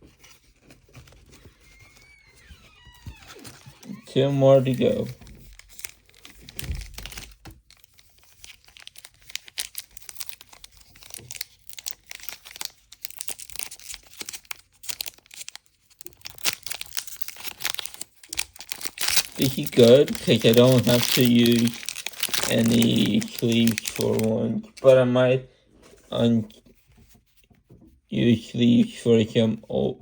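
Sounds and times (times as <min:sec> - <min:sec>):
foil wrapper crinkling and tearing: 0:00.5 - 0:24.3.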